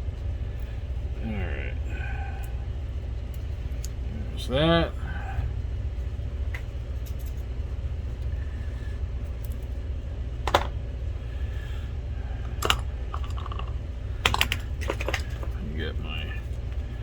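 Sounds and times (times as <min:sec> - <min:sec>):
low background hum: 0:00.0 - 0:17.0
clicks and rustles of small parts: 0:06.5 - 0:07.5, 0:09.3 - 0:09.8, 0:10.4 - 0:10.8, 0:12.4 - 0:15.6.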